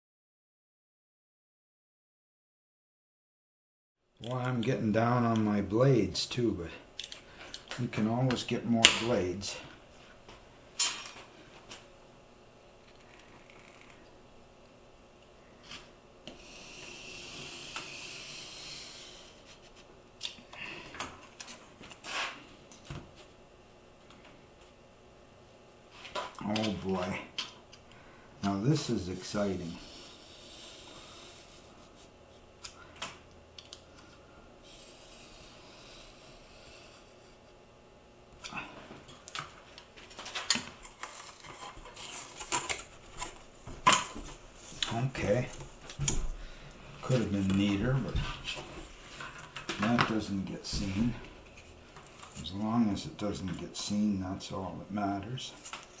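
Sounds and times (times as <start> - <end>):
materials tapping and rustling: 39.1 - 52.5.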